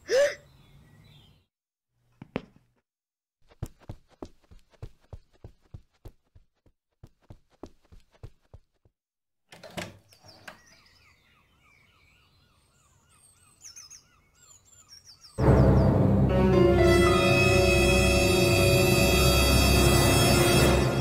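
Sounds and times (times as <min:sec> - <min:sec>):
birds chirping: 0:00.0 - 0:01.5, 0:10.0 - 0:16.0
soft footsteps: 0:02.1 - 0:02.8, 0:03.4 - 0:08.9
loud music: 0:15.4 - 0:21.0.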